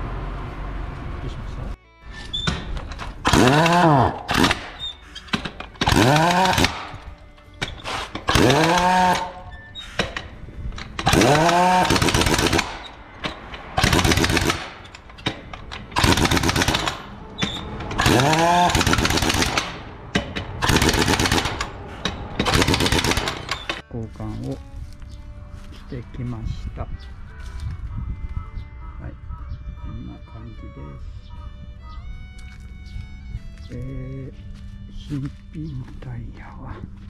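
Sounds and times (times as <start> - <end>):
pneumatic impact wrench spinning: 3.1 - 23.8.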